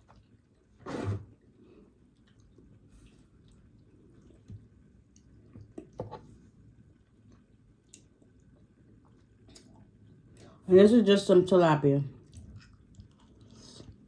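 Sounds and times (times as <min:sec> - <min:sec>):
person chewing: 0:01.8 - 0:10.6, 0:12.2 - 0:14.0.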